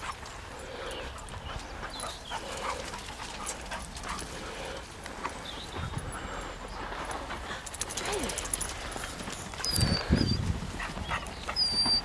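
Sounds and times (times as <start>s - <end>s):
dog whimpering and yipping: 9.6s - 12.0s.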